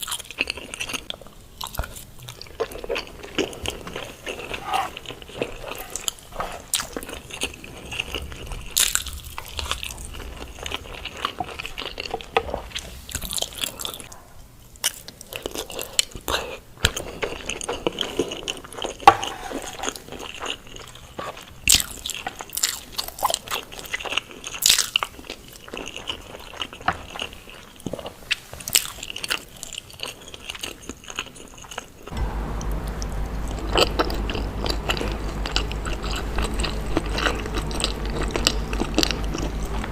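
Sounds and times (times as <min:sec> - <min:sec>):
biting and chewing: 0:14.8 - 0:39.9
steady low hum: 0:32.1 - 0:39.9.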